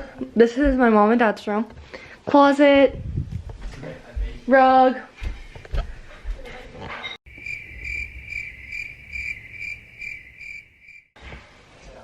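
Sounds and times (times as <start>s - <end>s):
cricket chirping: 7.3s - 11.2s.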